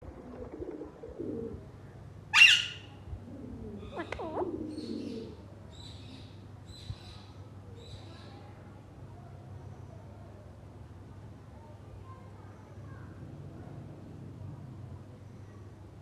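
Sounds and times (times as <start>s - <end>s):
parrot squawking and chirping: 2.4s - 2.8s.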